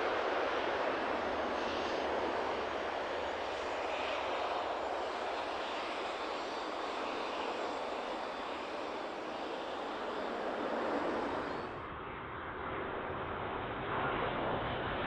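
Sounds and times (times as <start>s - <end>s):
turboprop engines droning: 0.0s - 15.0s.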